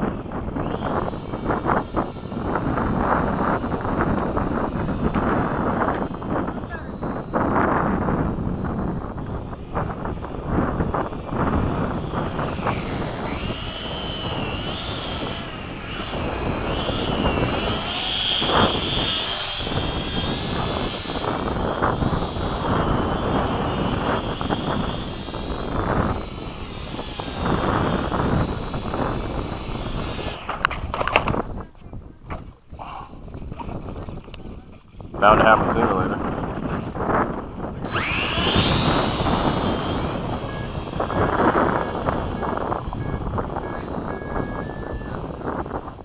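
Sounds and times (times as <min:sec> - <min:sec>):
model plane electric motors whining: 0:00.0 - 0:31.6, 0:32.3 - 0:46.0
wind rumbling on microphone: 0:00.0 - 0:46.0.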